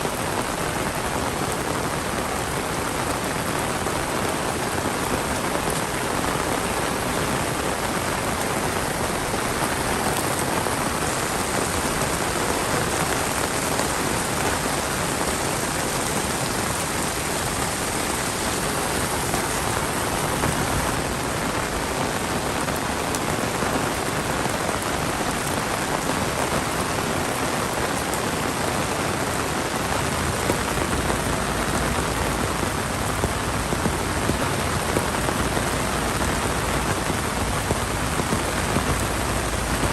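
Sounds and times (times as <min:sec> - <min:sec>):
heavy rain hissing: 0:00.0 - 0:39.9
individual raindrop taps: 0:29.7 - 0:39.9.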